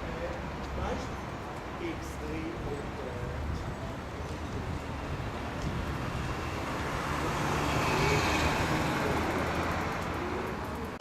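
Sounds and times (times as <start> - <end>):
road noise: 0.0 - 11.0
vehicle engine hum: 3.0 - 11.0.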